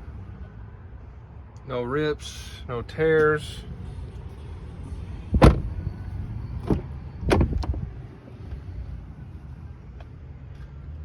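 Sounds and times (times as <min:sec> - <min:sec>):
knocks and thumps in truck cab: 0:05.3 - 0:05.8, 0:06.6 - 0:07.8.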